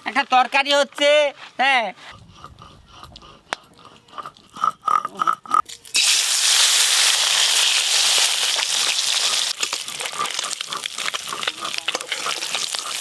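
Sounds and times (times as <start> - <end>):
fish frying in hot oil: 5.9 - 13.0.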